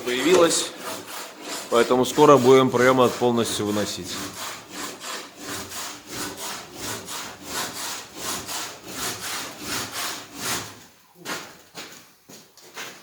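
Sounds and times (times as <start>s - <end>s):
hand saw cutting: 0.0s - 10.9s.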